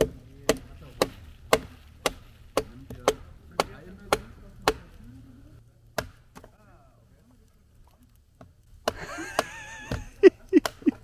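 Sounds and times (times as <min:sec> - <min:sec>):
wood being chopped: 0:00.0 - 0:05.0, 0:05.9 - 0:06.6, 0:08.4 - 0:11.0.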